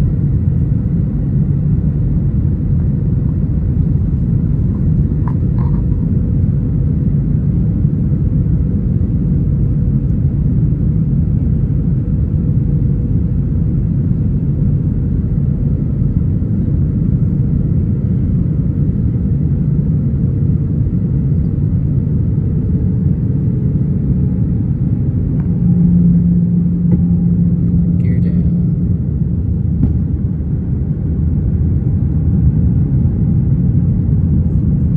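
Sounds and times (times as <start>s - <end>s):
jet engines and airflow rumble: 0.0s - 34.9s
steady low hum: 0.0s - 34.9s.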